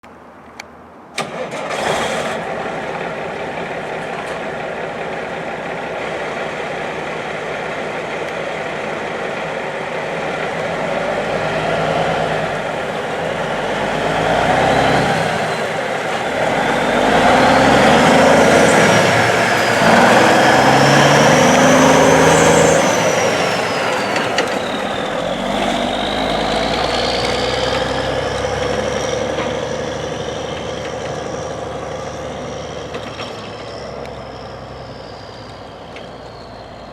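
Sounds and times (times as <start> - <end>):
diesel truck engine starting: 1.1 - 36.9
diesel truck engine idling: 2.4 - 29.2
engine revving with whine: 10.1 - 36.9.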